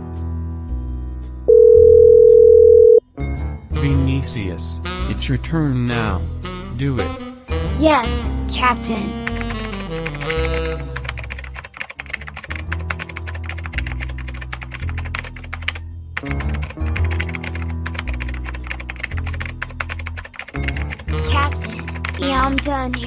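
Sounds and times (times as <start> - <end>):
background music with bass line: 3.2 - 11.6
rapid keyboard typing: 9.2 - 23.0.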